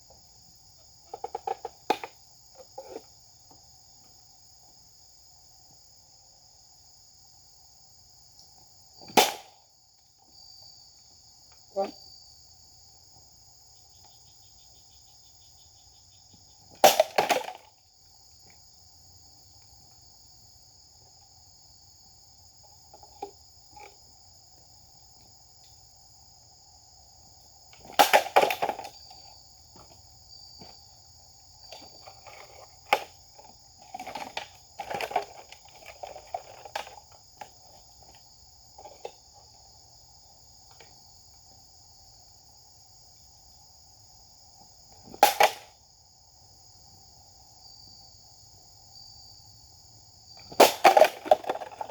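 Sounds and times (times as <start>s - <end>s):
insects singing: 0.0s - 51.9s.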